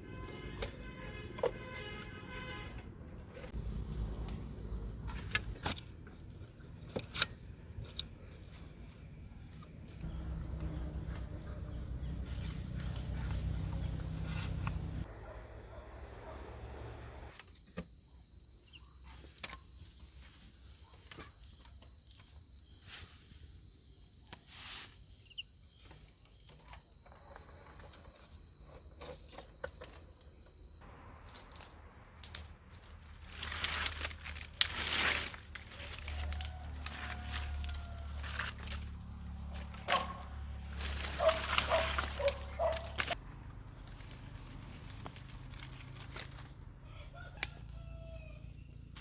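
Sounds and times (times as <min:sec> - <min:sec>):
rustling: 0:31.2 - 0:43.2.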